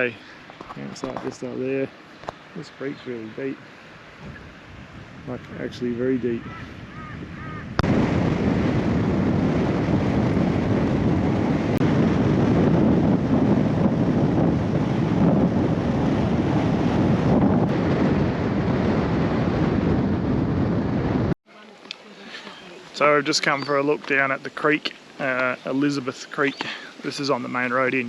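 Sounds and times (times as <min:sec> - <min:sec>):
creek water rushing: 0:00.0 - 0:07.6, 0:21.5 - 0:28.0.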